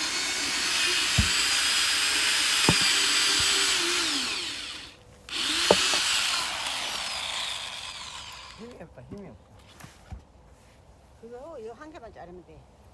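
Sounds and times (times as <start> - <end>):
electric saw cutting wood: 0.0 - 8.6.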